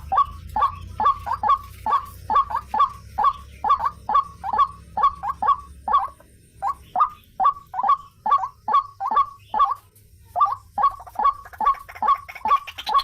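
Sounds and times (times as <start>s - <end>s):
waterhen calling harsh notes: 0.0s - 13.0s.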